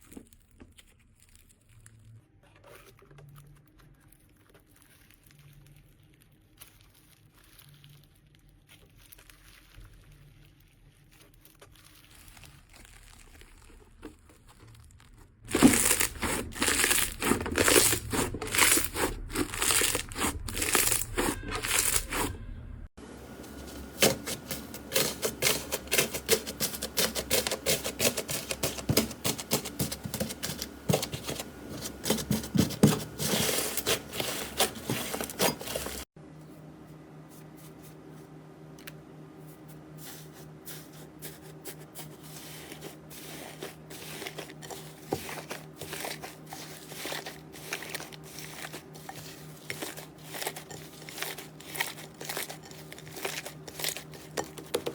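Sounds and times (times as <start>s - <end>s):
slime crackling and popping: 0.0s - 2.3s, 3.4s - 22.3s.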